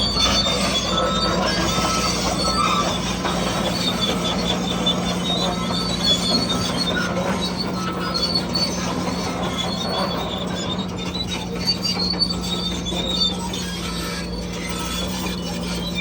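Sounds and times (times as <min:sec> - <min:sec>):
bulldozer engine hum: 0:00.0 - 0:16.0
steel tracks squealing: 0:00.0 - 0:16.0.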